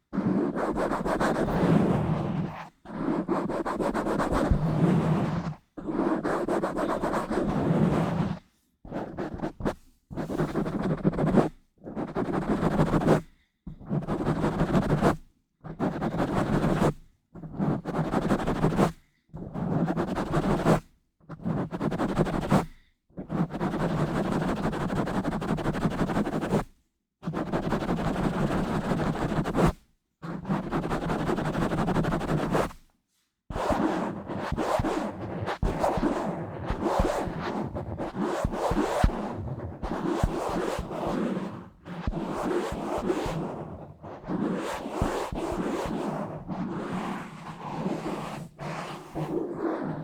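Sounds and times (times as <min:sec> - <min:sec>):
hands rubbing on microphone: 0:00.1 - 0:13.1, 0:30.4 - 0:32.8, 0:33.5 - 0:50.0.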